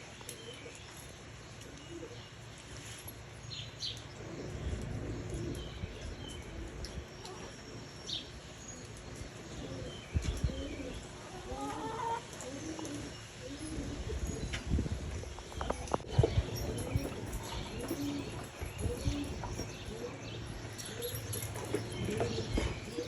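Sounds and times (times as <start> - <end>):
pigeons cooing: 4.0 - 7.7, 8.8 - 23.0.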